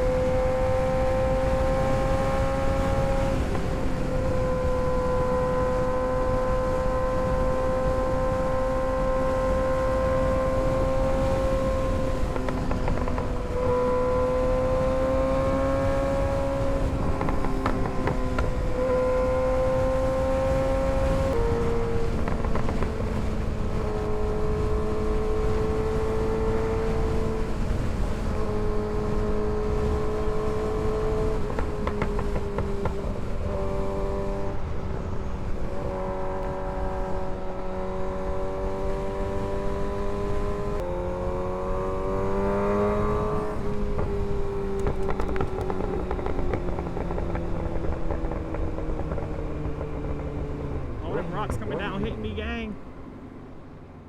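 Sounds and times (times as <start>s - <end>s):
motorcycle engine running: 0.0s - 24.3s, 42.8s - 51.3s.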